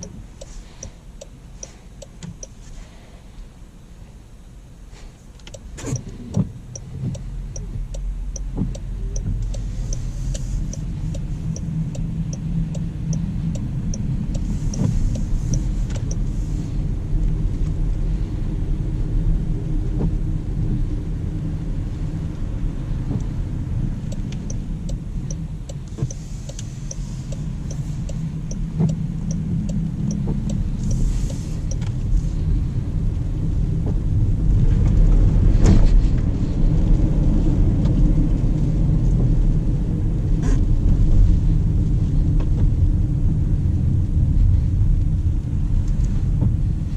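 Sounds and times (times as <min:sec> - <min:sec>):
road and tyre noise inside car: 0:00.0 - 0:46.9
quiet high ticking: 0:05.5 - 0:16.3, 0:24.1 - 0:31.9.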